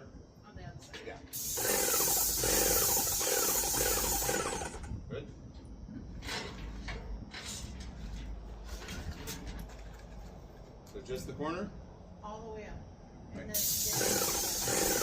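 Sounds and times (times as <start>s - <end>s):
paint sprayer hissing: 1.3s - 4.8s, 13.6s - 15.0s.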